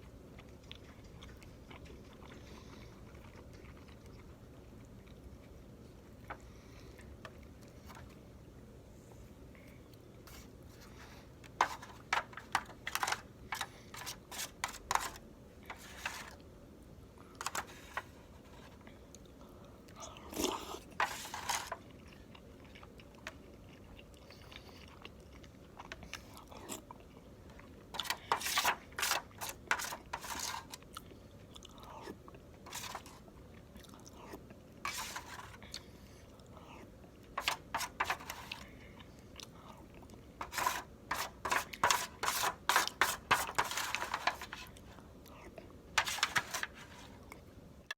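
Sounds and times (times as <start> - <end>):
chewing with wet mouth clicks: 0.0 - 5.5, 21.8 - 27.8.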